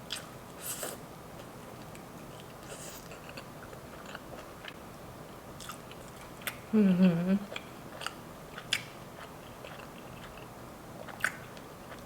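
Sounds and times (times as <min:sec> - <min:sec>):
chewing and biting: 0:07.5 - 0:12.0.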